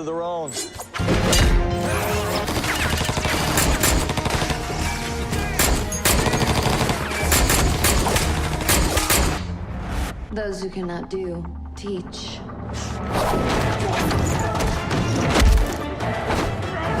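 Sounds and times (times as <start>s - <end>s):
music: 0.0s - 17.0s
rapid heavy gunfire: 2.3s - 9.4s.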